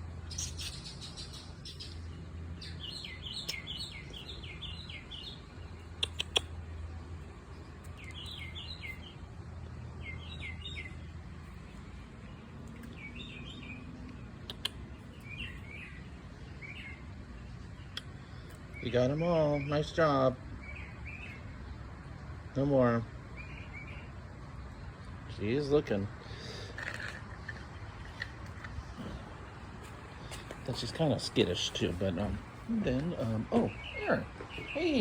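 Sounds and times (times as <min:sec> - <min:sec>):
small birds chirping: 0:00.0 - 0:35.0
sharp clicks: 0:06.0 - 0:06.5, 0:14.0 - 0:14.8.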